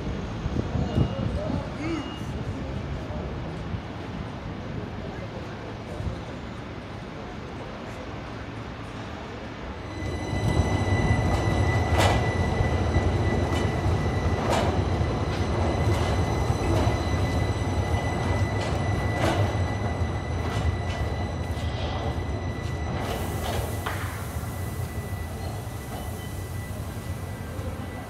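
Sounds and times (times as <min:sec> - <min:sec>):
train rumbling: 0:00.0 - 0:28.0
high-pitched train whine: 0:04.7 - 0:28.0
train wheels knocking: 0:10.3 - 0:24.4.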